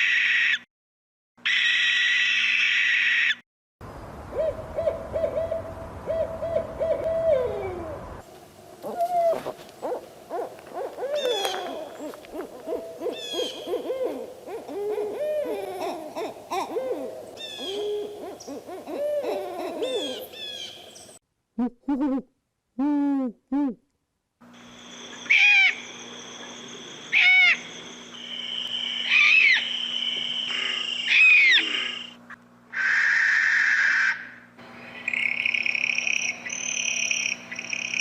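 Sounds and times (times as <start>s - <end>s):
owl hooting: 4.3s - 8.0s, 8.8s - 21.0s, 25.1s - 34.4s
higher falling owl calls: 4.3s - 8.1s, 8.8s - 20.9s, 25.1s - 27.8s, 28.4s - 34.4s.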